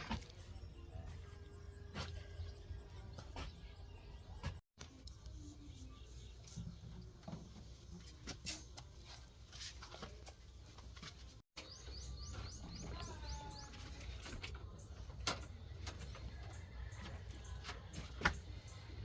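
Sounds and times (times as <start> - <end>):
small bird chirping: 11.6 - 15.0.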